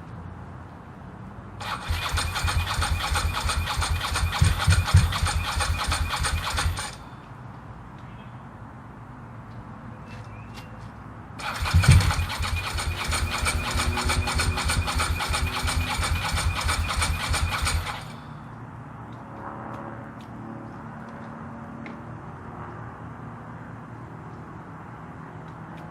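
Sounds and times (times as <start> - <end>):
electric starter cranking engine: 1.6 - 7.1, 11.4 - 18.3.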